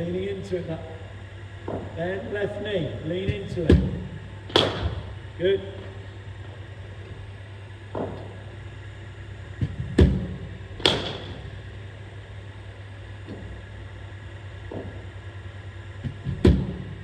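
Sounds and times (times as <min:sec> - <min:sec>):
cricket ball landing thud: 0:01.6 - 0:02.0, 0:03.3 - 0:05.2, 0:09.6 - 0:11.6, 0:14.7 - 0:15.1
cricket bat striking ball: 0:03.2 - 0:05.3, 0:09.6 - 0:11.7, 0:14.7 - 0:15.2, 0:16.0 - 0:17.0.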